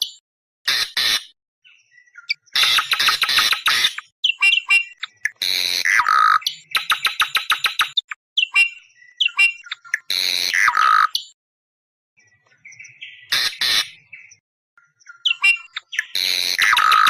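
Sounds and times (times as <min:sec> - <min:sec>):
bird whistled notes: 0:02.0 - 0:05.3, 0:06.0 - 0:10.0, 0:15.0 - 0:17.0
bird harsh rattling chatter: 0:02.5 - 0:08.0, 0:15.2 - 0:17.0.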